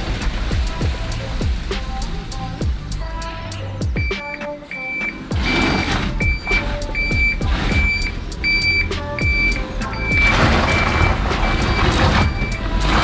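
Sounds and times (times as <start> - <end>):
reversing beeper: 4.7 - 12.8.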